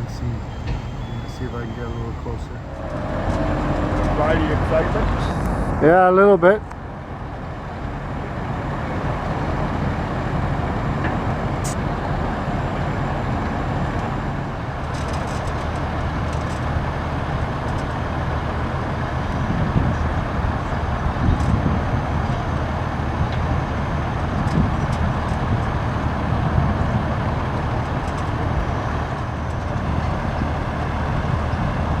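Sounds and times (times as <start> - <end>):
truck engines idling: 0.0 - 14.9.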